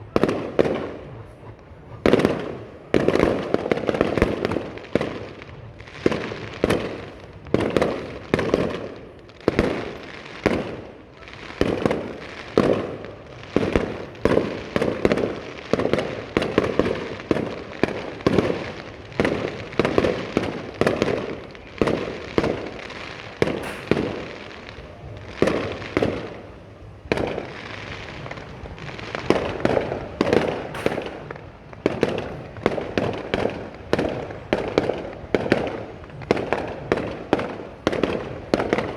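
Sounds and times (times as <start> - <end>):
fireworks shells bursting: 0.1 - 38.9.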